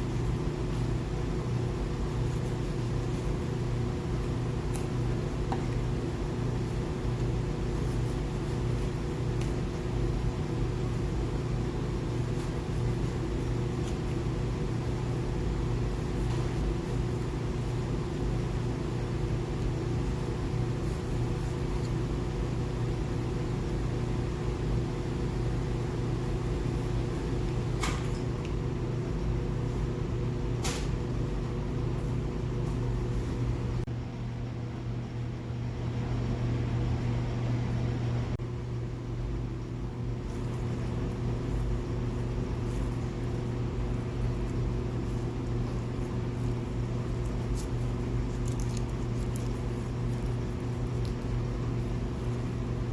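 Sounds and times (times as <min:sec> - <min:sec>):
low mechanical hum: 0:00.0 - 0:52.9.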